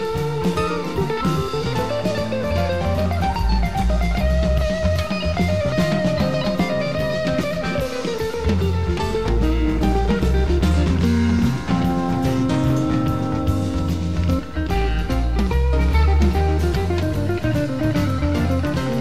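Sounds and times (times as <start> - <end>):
bass guitar: 0.0 - 19.0
drum kit steady beat: 0.0 - 19.0
electric guitar lead: 0.0 - 19.0.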